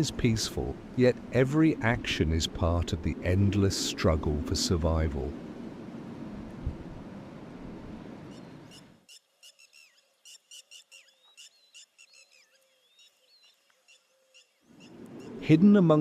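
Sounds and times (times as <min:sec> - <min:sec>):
steady rushing noise: 0:00.0 - 0:08.3
gliding whistled bird calls: 0:08.3 - 0:15.4
rapid bird chirps: 0:08.3 - 0:15.4.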